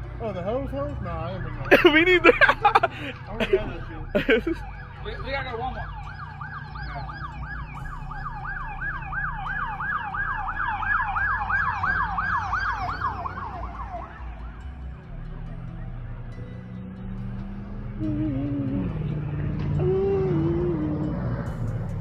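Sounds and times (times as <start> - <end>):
vehicle engine and road drone: 0.0 - 22.0
siren yelping: 1.5 - 14.4.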